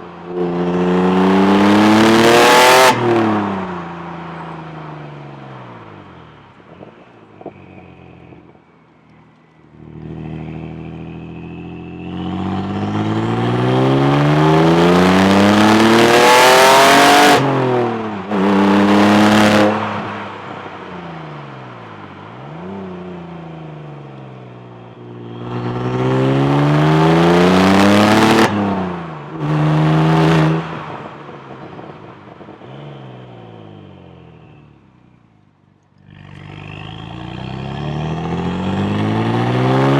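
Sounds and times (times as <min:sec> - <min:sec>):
car engine accelerating hard: 0:00.0 - 0:34.9, 0:35.9 - 0:39.9.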